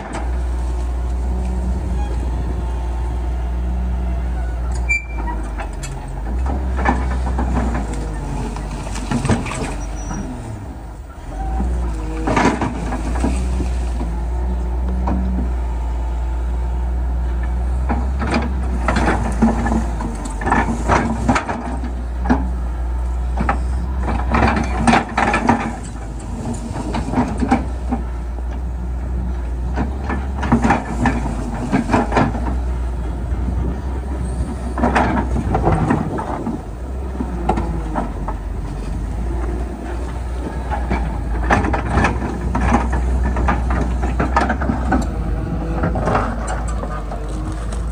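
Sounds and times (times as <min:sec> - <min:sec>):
diesel engine running: 0:00.0 - 0:47.9
metal clanking and rattling: 0:04.7 - 0:14.2, 0:23.3 - 0:28.7, 0:29.4 - 0:47.9.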